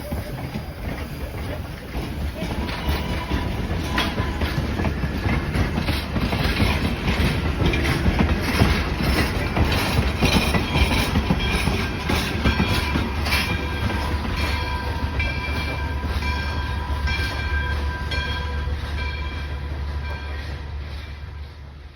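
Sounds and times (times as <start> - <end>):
train rumbling: 0.0 - 21.9
clatter from rails: 0.4 - 16.4
high wheel squeals: 2.3 - 17.4.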